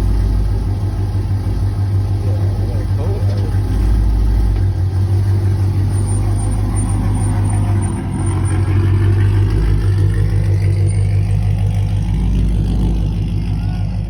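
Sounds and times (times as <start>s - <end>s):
car engine idling loudly: 0.0s - 14.0s.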